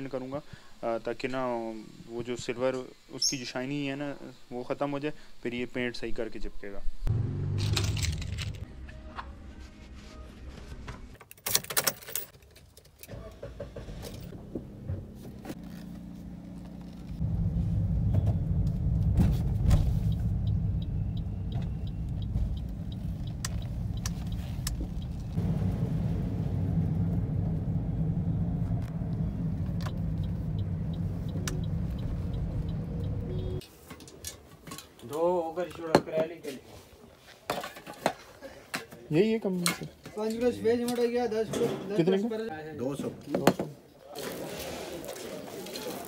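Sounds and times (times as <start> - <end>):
road noise: 7.0 - 11.0, 13.0 - 34.9
car engine starting and idling: 7.1 - 8.6, 13.1 - 33.6
keys clicking in ignition: 7.6 - 8.6, 11.2 - 13.1.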